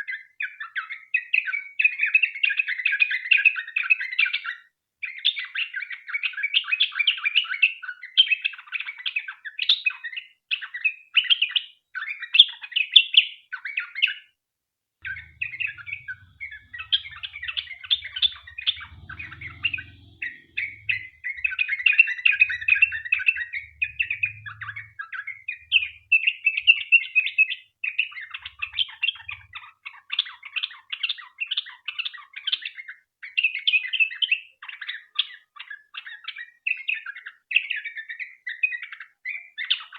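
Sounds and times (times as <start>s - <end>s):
bird singing chattering song: 15.0s - 32.7s.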